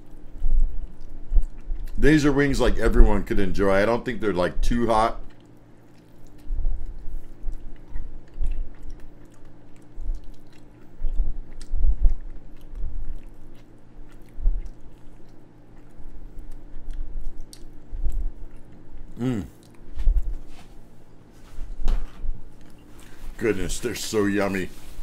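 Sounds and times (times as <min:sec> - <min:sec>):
man biting and chewing: 0:00.0 - 0:02.0, 0:05.2 - 0:20.4.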